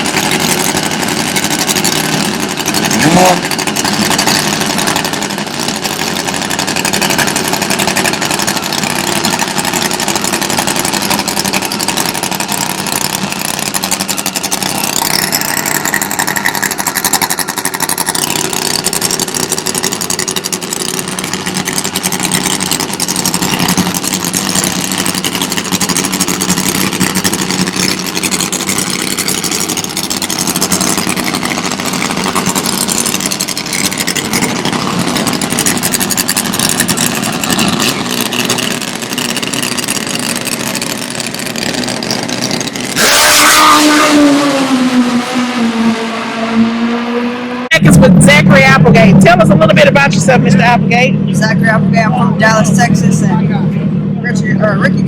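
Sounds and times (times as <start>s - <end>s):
motorcycle engine idling: 0.0s - 43.2s.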